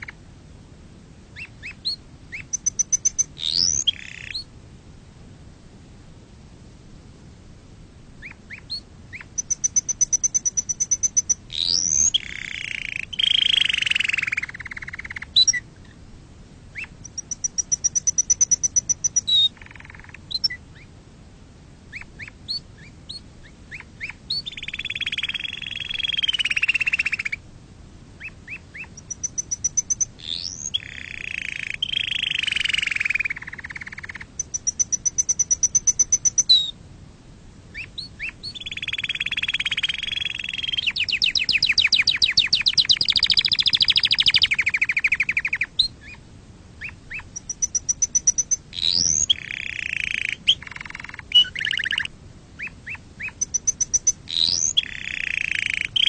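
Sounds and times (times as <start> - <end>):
canary singing: 1.4 - 4.5, 8.2 - 16.0, 16.7 - 20.9, 21.9 - 27.4, 28.2 - 36.8, 37.7 - 46.2, 46.8 - 56.0.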